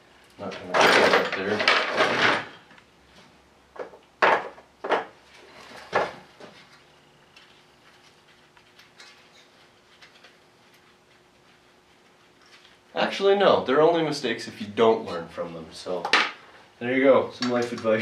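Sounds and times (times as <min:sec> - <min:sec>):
wrench clanking on metal parts: 0:00.6 - 0:02.6.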